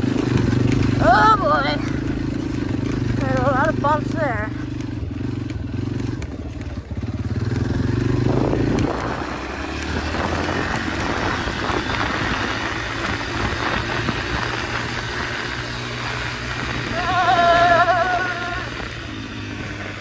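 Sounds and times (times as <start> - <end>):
dirt bike engine running: 0.0 - 20.0.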